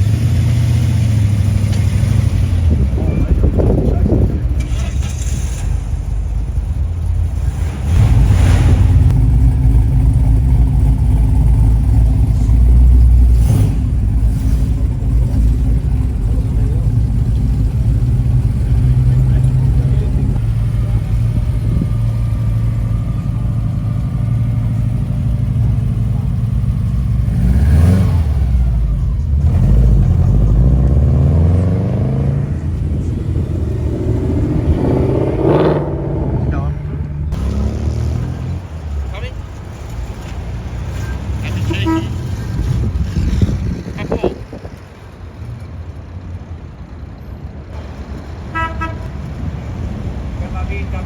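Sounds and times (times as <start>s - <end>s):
car engine running and revving: 0.0s - 51.0s.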